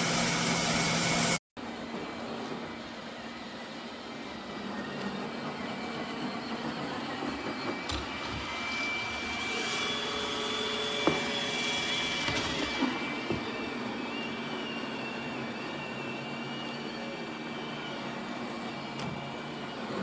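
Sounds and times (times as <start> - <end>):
robot vacuum motor whir: 7.1 - 20.0.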